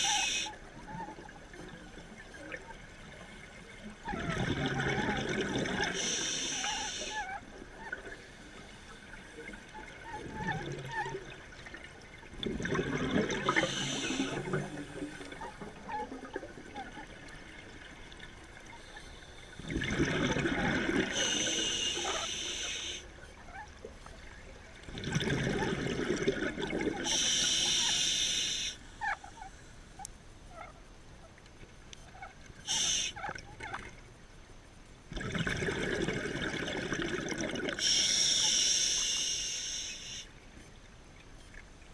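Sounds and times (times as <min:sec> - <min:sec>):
diver breathing through regulator: 0:00.0 - 0:00.6, 0:05.9 - 0:07.2, 0:13.4 - 0:15.3, 0:21.0 - 0:23.1, 0:27.0 - 0:28.8, 0:37.8 - 0:40.3
exhaled bubbles: 0:04.0 - 0:08.2, 0:09.4 - 0:18.8, 0:19.6 - 0:23.0, 0:24.8 - 0:28.6, 0:35.1 - 0:38.4
faint clicks and crackles: 0:07.4 - 0:21.1.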